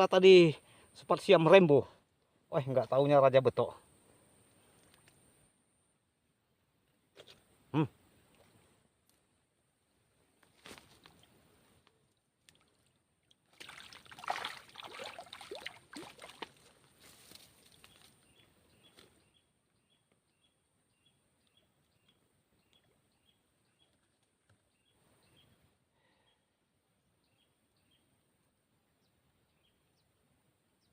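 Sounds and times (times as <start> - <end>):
water splashing and sloshing: 12.4 - 16.9.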